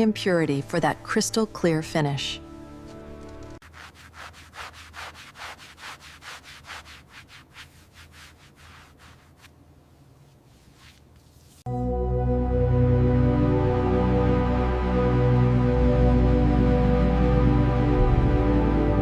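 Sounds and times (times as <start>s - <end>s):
cloth rubbing on glass: 3.6s - 11.7s.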